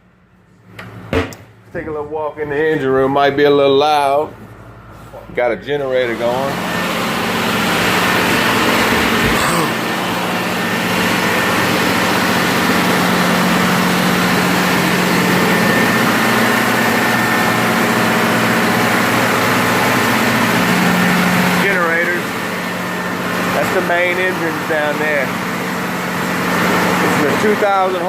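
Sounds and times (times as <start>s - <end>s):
generator running: 0.0s - 28.0s.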